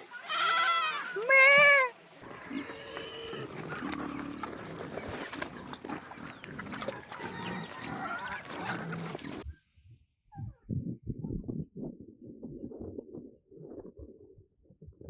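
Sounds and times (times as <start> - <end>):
animal grunts: 2.2 - 9.4
farm animals calling: 2.2 - 9.5.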